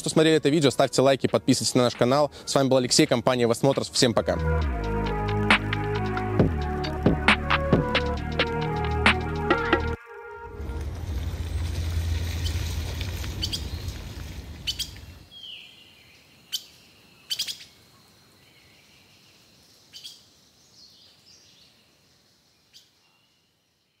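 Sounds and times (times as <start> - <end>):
low rumble: 10.5 - 15.2.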